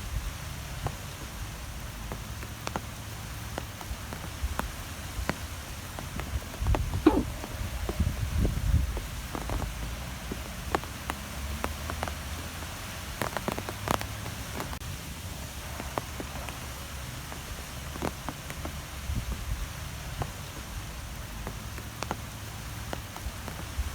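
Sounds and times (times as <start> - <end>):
light taps and ticks: 0.6 - 7.3, 8.9 - 14.8, 15.6 - 23.9
wind blowing: 6.0 - 9.6.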